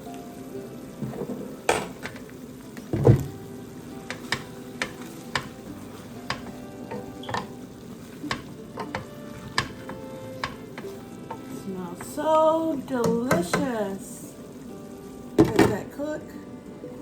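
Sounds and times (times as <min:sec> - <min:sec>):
chicken sizzling in a pot: 0:00.0 - 0:17.0
utensil clicking against pot: 0:04.1 - 0:05.6, 0:06.3 - 0:07.5, 0:08.2 - 0:11.4.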